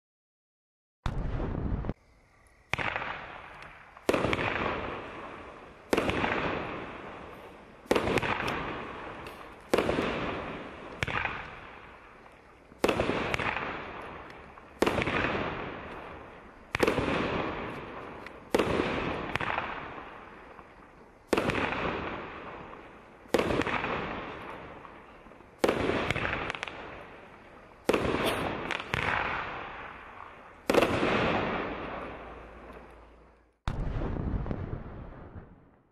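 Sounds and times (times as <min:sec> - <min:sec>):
firework bangs: 0:01.0 - 0:02.0, 0:02.6 - 0:35.8
rumble after firework bang: 0:01.0 - 0:02.0, 0:33.6 - 0:35.9.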